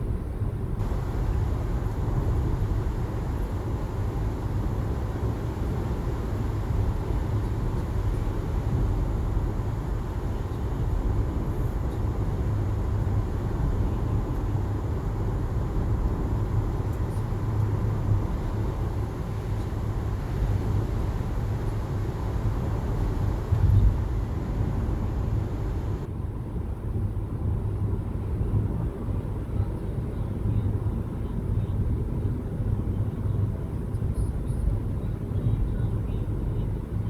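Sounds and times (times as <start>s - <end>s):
car driving on road: 0.8s - 26.1s.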